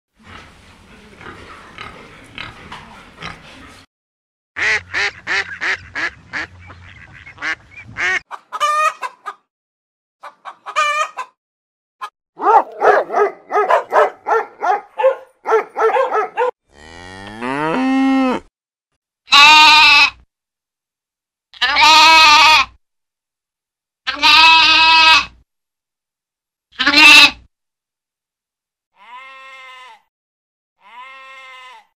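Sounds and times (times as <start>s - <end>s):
pig grunting: 0.2s - 3.9s
chickens clucking: 5.0s - 9.5s, 10.2s - 11.4s
goat bleating: 19.3s - 20.2s, 21.6s - 22.8s, 24.1s - 25.4s, 26.8s - 27.4s, 29.0s - 30.0s, 30.8s - 31.9s
long drawn-out animal call: 29.0s - 30.1s, 30.8s - 31.9s.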